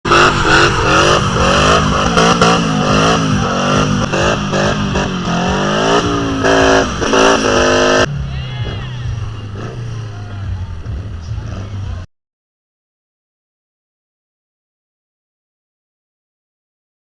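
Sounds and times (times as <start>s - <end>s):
car engine revving: 0.0s - 8.3s, 9.1s - 12.1s.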